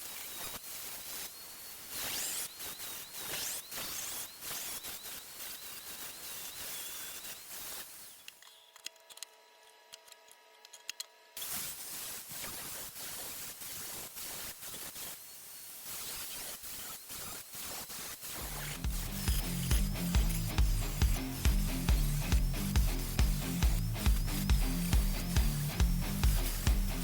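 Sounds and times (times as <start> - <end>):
welding arc crackling: 11.4 - 27.0.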